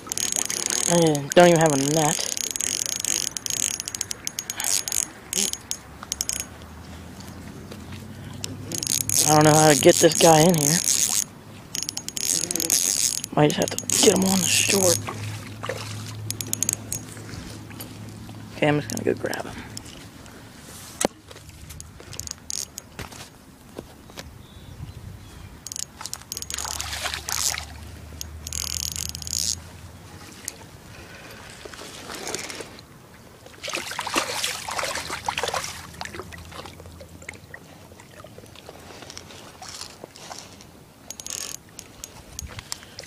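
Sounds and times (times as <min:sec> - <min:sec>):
fish thrashing in water: 0:00.0 - 0:06.6, 0:08.2 - 0:18.5, 0:25.7 - 0:29.4, 0:31.5 - 0:40.3
water splashing and sloshing: 0:00.0 - 0:24.0, 0:25.6 - 0:43.0.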